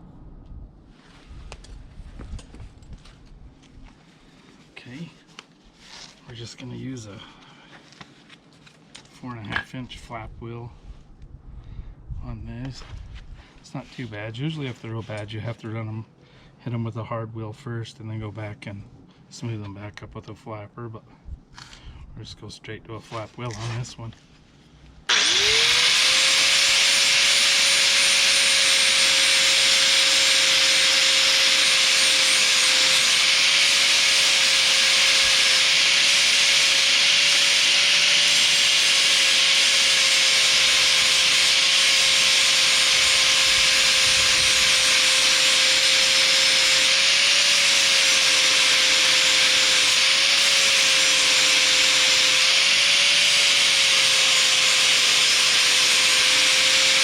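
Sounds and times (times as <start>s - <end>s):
angle grinder whining: 25.1s - 57.0s.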